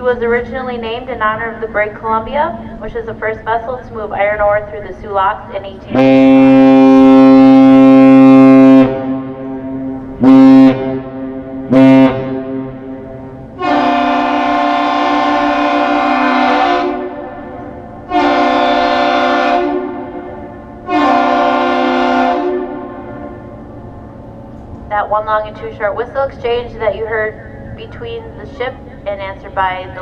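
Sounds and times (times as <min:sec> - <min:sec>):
ship horn blasts: 0:05.6 - 0:24.3
bridge horn blasts: 0:05.8 - 0:24.1.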